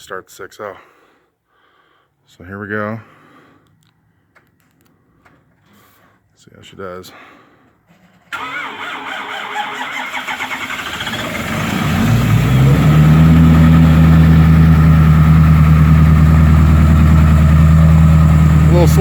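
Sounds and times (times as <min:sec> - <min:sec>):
starter motor cranking: 0:08.3 - 0:11.4
diesel engine idling loudly: 0:10.8 - 0:19.0.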